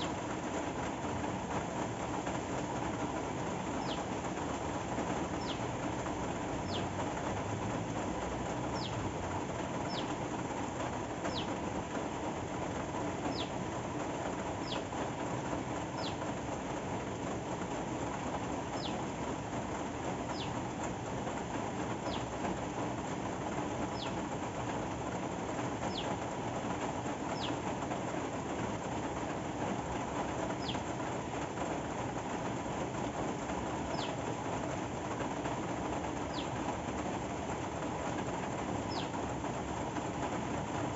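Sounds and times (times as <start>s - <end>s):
steady rain: 0.0s - 40.9s
small bird calling: 3.4s - 7.1s, 8.5s - 10.4s, 11.1s - 11.7s, 13.2s - 13.7s, 14.4s - 15.1s, 15.8s - 16.4s, 18.5s - 19.2s, 20.2s - 20.6s, 22.0s - 22.4s, 23.8s - 24.3s, 25.7s - 26.3s, 27.2s - 27.7s, 30.4s - 31.0s, 33.8s - 34.3s, 36.1s - 36.7s, 38.8s - 39.2s.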